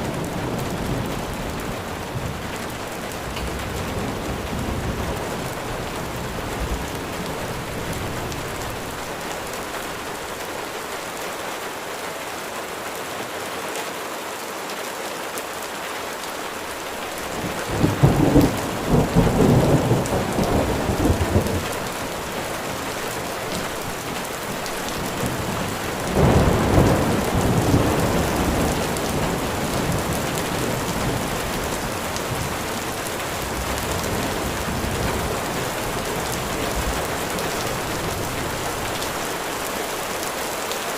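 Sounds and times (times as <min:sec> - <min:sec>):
distant thunder rolling: 0:00.0 - 0:09.2, 0:17.3 - 0:39.2
steady rain hiss: 0:00.0 - 0:40.9.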